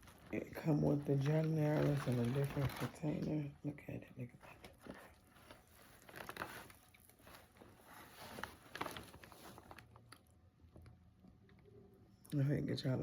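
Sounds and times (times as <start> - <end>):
food wrapping rustling: 0.0 - 3.3, 4.5 - 10.3.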